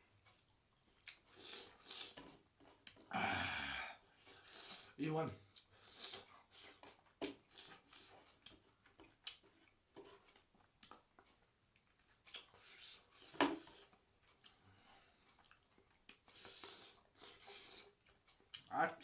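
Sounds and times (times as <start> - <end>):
person chewing: 0.2 - 3.1, 5.5 - 9.8, 10.8 - 18.7.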